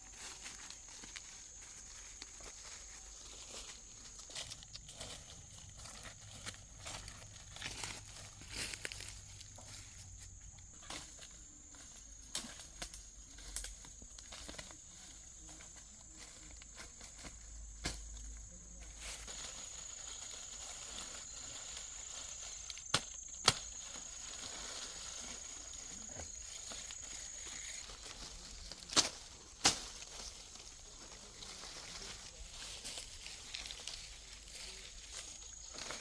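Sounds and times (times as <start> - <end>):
insect high-pitched drone: 0.0 - 30.8
rural outdoor ambience: 0.0 - 36.0.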